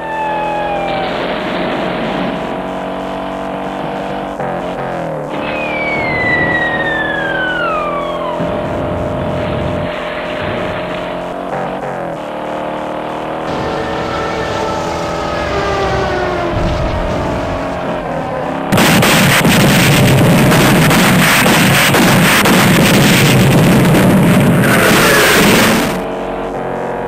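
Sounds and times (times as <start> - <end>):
road noise: 0.0 - 27.0
car engine from inside cabin: 8.4 - 20.9.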